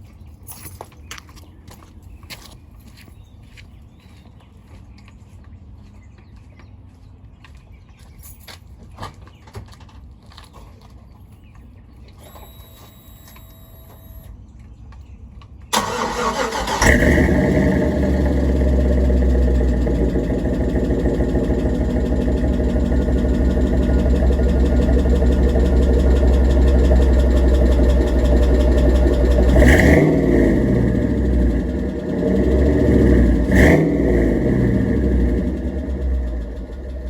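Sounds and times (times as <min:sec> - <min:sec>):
starter cranking: 0:15.8 - 0:17.5
truck engine idling: 0:15.8 - 0:37.0.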